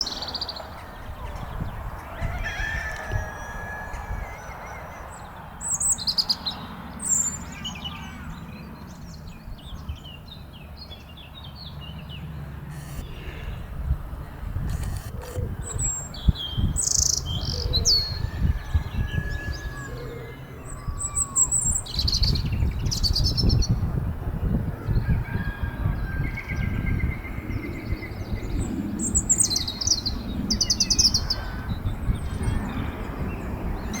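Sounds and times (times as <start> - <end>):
small birds chirping: 4.0 - 23.8
low rumbling noise: 12.2 - 25.0.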